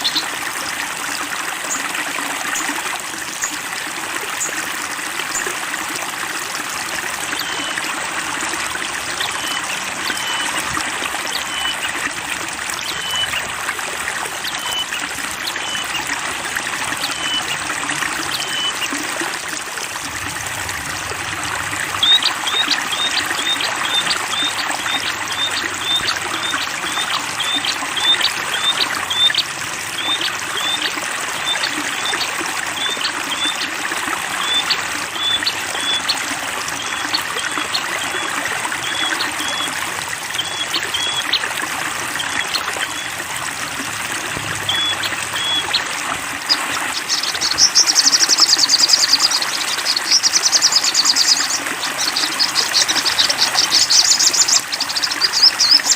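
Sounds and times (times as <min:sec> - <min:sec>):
water trickling: 0:00.0 - 0:55.9.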